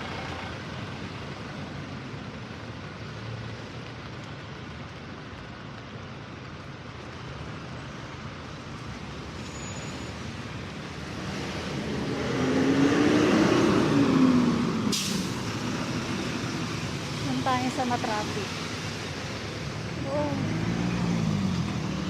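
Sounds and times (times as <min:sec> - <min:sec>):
street traffic: 0:00.0 - 0:22.0
vehicle passing close by: 0:10.9 - 0:22.0
short sharp hiss: 0:14.9 - 0:15.4.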